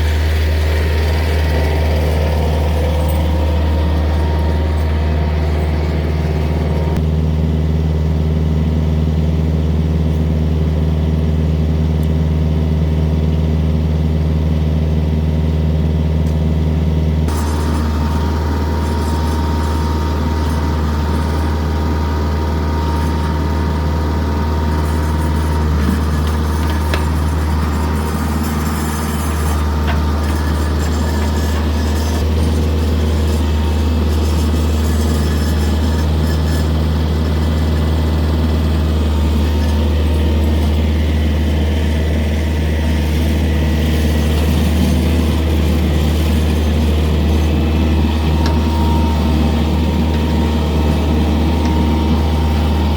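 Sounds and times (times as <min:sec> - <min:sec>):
tractor diesel engine running: 0:00.0 - 0:52.9.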